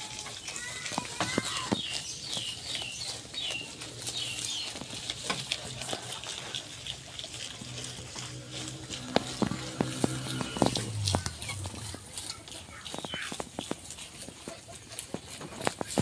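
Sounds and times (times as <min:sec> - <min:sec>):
small birds chirping: 0:00.0 - 0:05.7, 0:08.7 - 0:14.7.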